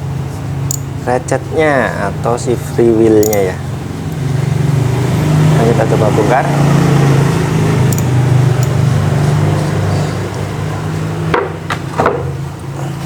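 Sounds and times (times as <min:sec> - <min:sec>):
steady low hum: 0:00.0 - 0:13.0
sharp metal knocks: 0:11.3 - 0:12.4.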